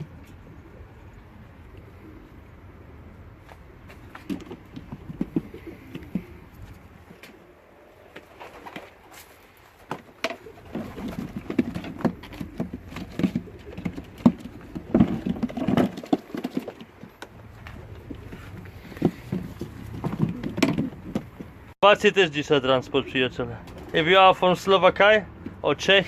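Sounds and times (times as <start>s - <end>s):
pigeons cooing: 0.0s - 21.7s, 22.4s - 24.1s
birds scuffling and knocking: 3.4s - 21.8s.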